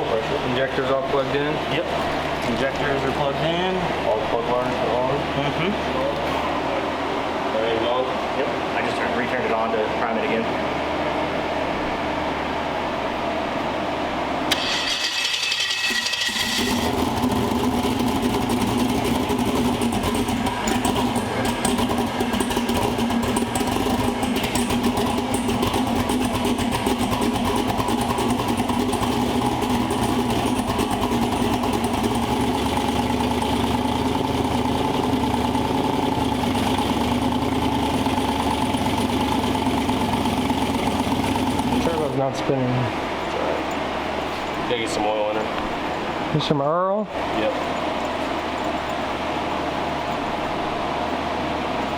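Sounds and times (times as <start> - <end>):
car engine running: 0.0 - 13.4, 14.4 - 51.9
starter motor cranking: 14.5 - 42.3.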